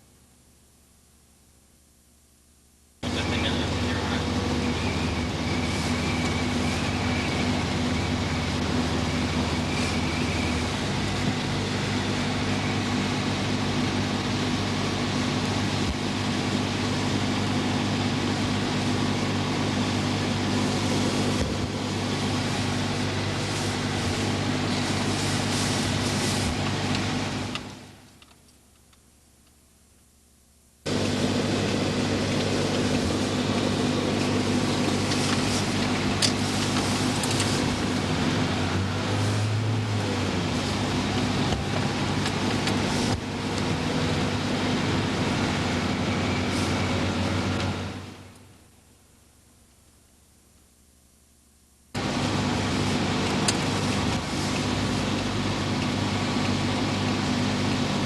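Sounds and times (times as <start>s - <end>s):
vehicle engine running: 3.0s - 28.4s, 30.8s - 49.9s, 51.9s - 58.0s.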